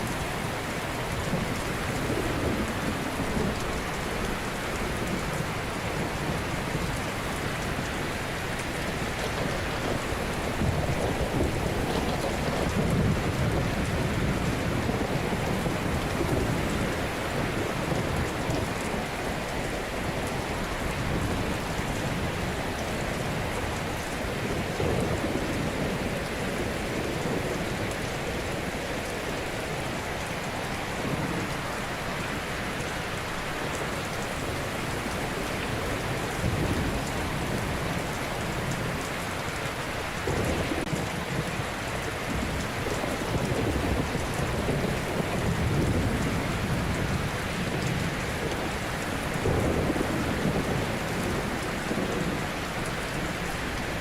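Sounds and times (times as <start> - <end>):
waves breaking and washing ashore: 0.0 - 54.0.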